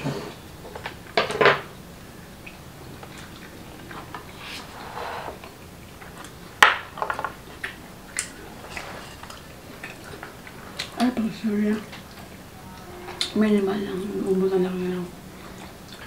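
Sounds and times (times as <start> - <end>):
chewing shellfish: 7.3 - 13.4.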